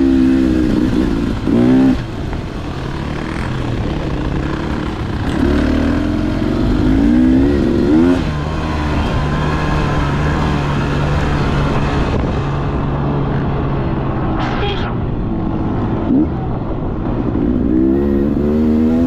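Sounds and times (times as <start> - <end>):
two-stroke dirt bike engine revving: 0.0 - 13.0, 17.3 - 19.0.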